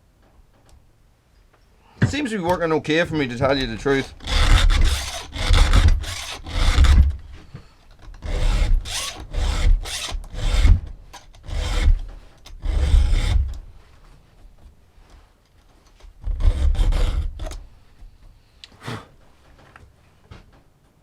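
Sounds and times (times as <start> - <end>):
file rasping on chainsaw chain: 3.2 - 7.4, 8.2 - 13.6, 16.4 - 17.6.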